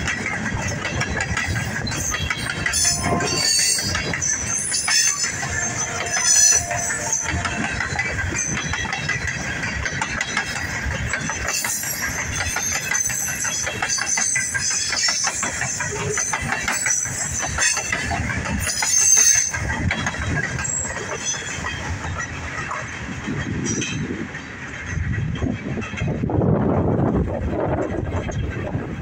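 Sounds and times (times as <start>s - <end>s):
freight train wheels rattling: 0.0s - 29.0s
high-pitched wheel squeals: 1.8s - 8.5s, 11.5s - 19.6s.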